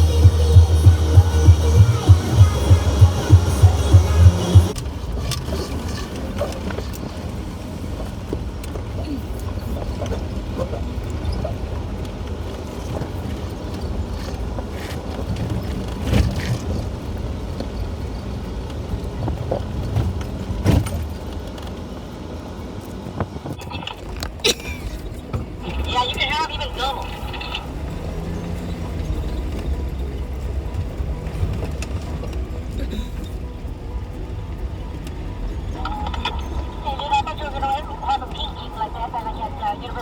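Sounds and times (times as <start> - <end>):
music with heavy beat: 0.0 - 4.8
vehicle rumbling over dirt trail: 0.0 - 37.8.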